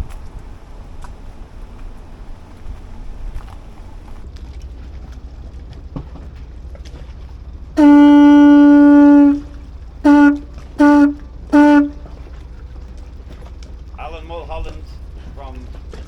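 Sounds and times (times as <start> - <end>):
boat horn blasts: 7.7 - 12.5.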